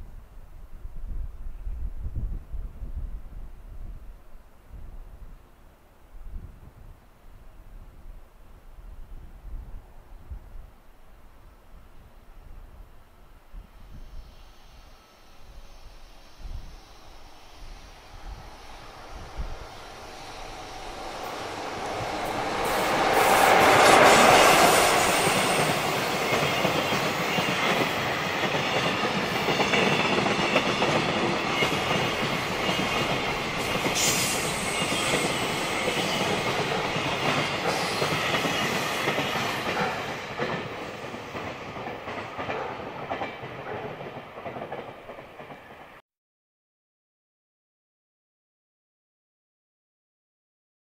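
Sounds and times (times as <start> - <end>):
electric locomotive passing: 12.4 - 46.0
wheels clacking over rail joints: 19.6 - 45.8.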